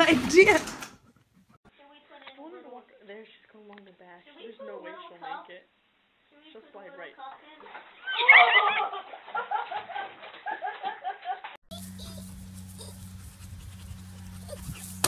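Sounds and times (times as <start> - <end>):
people shrieking with laughter: 8.0 - 9.8
steady low hum: 11.7 - 15.0.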